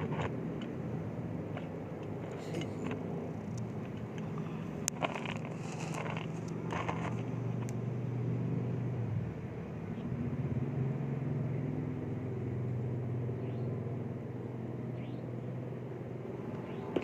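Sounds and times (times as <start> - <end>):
road traffic rumble: 0.0 - 17.0
bird chirping: 13.4 - 13.8, 14.9 - 15.5, 16.6 - 17.0.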